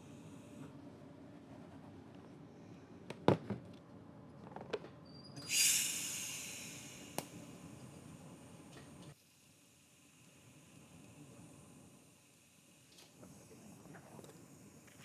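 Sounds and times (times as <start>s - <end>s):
low steady hum: 5.5s - 13.1s
welding torch hiss: 5.5s - 15.0s.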